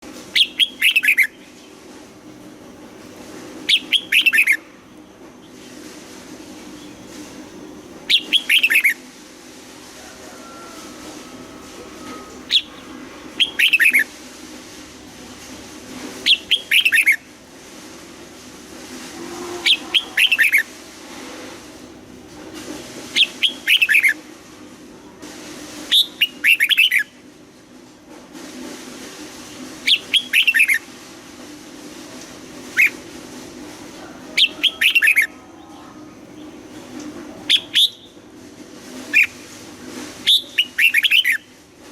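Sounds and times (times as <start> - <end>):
bird singing whistled notes: 0.4 - 1.4, 8.1 - 9.0, 12.0 - 14.1, 37.5 - 38.2.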